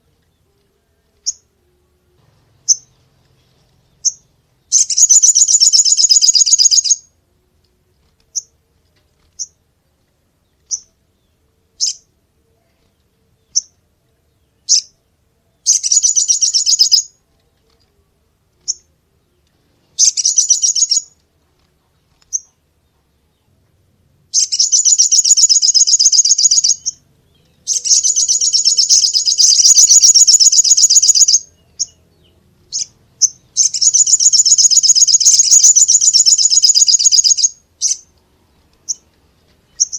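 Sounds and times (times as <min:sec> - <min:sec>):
bird buzzy trills: 0:02.6 - 0:07.1, 0:15.6 - 0:17.2, 0:19.9 - 0:21.2, 0:24.3 - 0:27.0, 0:27.6 - 0:38.1
short bird chirps: 0:04.0 - 0:07.1, 0:15.7 - 0:17.1, 0:19.9 - 0:21.2, 0:24.3 - 0:32.0, 0:32.7 - 0:38.1.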